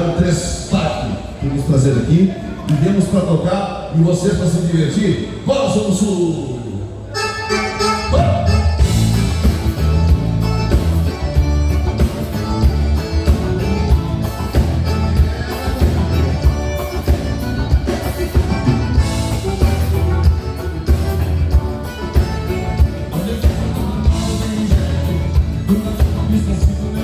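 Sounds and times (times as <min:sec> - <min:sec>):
live band playing instrumental: 0:07.0 - 0:27.0.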